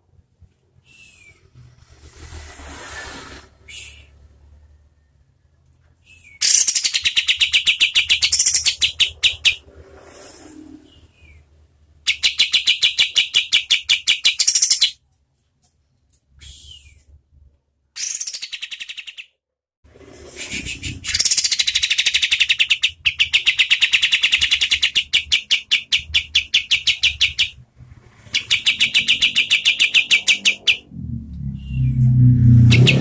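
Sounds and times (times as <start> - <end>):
bird singing rapid rattling song: 6.4 - 9.7, 12.1 - 15.0, 18.0 - 19.3, 20.6 - 27.6, 28.2 - 30.9, 32.6 - 33.0.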